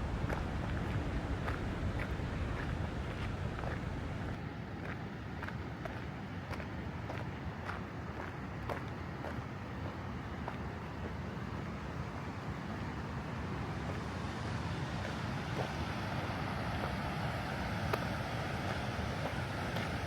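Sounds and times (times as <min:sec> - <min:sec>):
rushing mountain water: 0:00.0 - 0:04.4.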